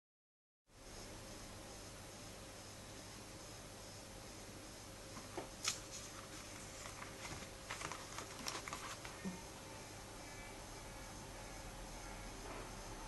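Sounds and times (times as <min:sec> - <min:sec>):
faint steady hum: 0:00.7 - 0:13.0
paper rustling: 0:05.3 - 0:09.4.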